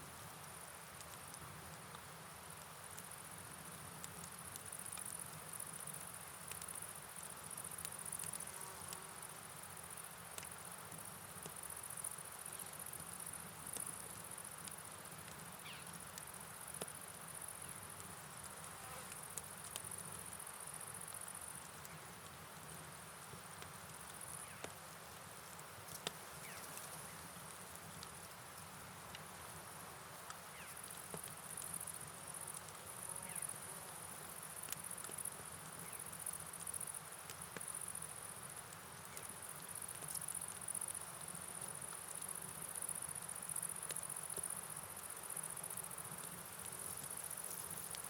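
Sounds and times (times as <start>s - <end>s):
rain hiss: 0.0s - 48.0s
light ticks: 0.4s - 6.8s, 10.3s - 10.5s, 13.7s - 17.0s, 17.9s - 22.4s, 25.9s - 29.3s, 30.2s - 33.5s, 34.6s - 37.9s, 38.6s - 44.6s
night crickets chirping: 4.3s - 48.0s.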